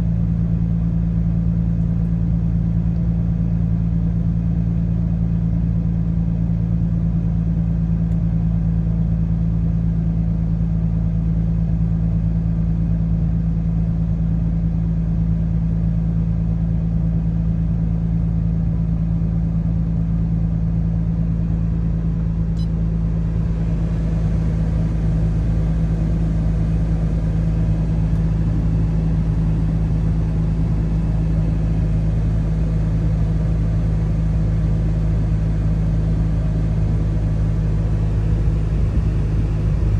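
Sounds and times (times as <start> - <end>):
car engine idling: 20.6 - 39.9.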